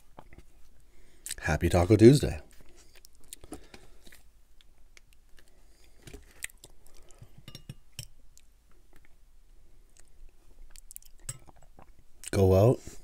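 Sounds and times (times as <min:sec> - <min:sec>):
chewing crunchy taco: 0:02.5 - 0:07.2, 0:09.8 - 0:12.4.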